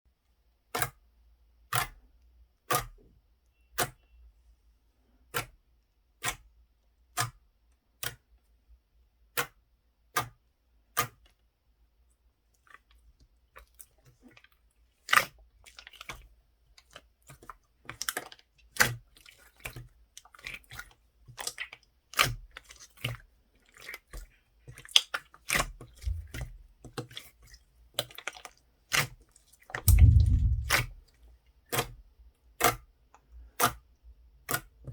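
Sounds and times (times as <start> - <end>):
crackling and clicking: 29.9 - 30.9.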